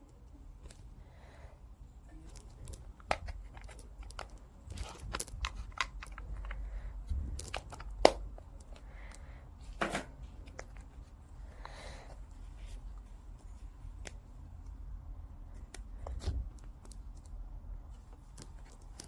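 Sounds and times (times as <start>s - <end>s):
small objects clicking and rustling: 2.2s - 9.2s.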